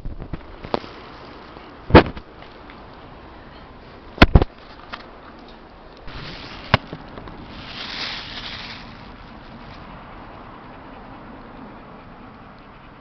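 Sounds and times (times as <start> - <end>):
strong wind gusts: 0.0 - 2.2.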